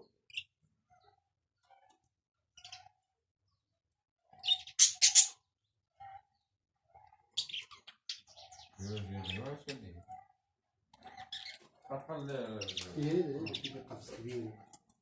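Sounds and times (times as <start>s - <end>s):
budgerigars chirping: 4.4s - 5.5s, 7.3s - 10.0s, 11.0s - 14.6s.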